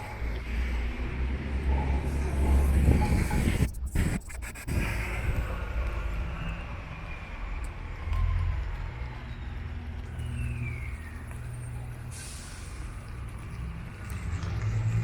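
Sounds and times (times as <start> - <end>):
heavy vehicle engine rumbling: 0.0 - 15.0
air brakes hissing: 11.9 - 13.3.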